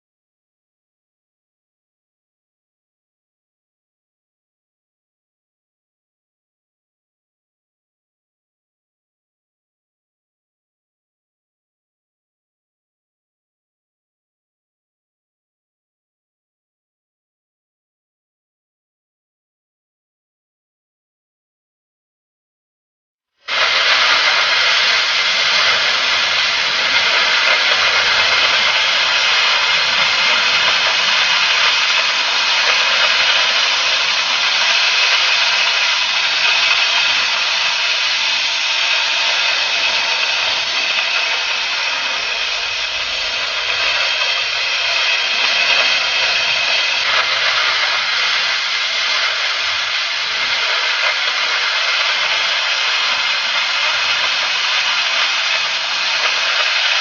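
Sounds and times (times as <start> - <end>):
cutting torch hissing: 23.4 - 57.0.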